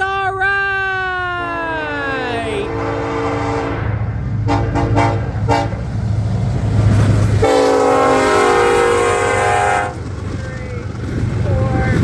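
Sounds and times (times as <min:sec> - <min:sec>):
locomotive low rumble: 0:01.0 - 0:12.0
locomotive air horn: 0:02.6 - 0:05.9, 0:07.4 - 0:10.0.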